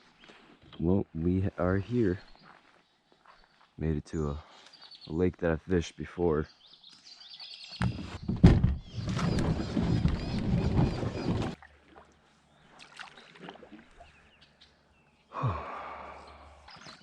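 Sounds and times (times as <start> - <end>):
water sounds: 9.2 - 14.3.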